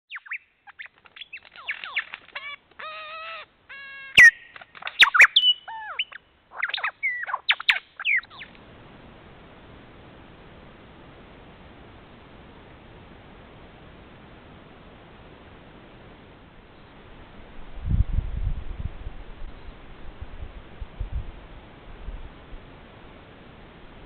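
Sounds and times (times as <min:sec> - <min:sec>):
birds chirping and whistling: 0:00.1 - 0:03.4, 0:04.1 - 0:08.5
reedy bird calls: 0:00.1 - 0:08.6
steady faint hiss: 0:00.3 - 0:24.0.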